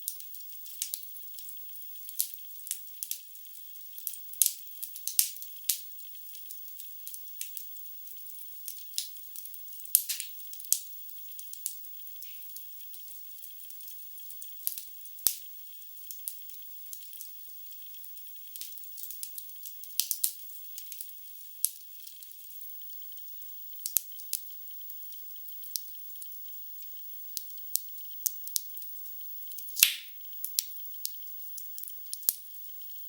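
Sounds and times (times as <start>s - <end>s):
logs crackling in fireplace: 9.9s - 10.4s.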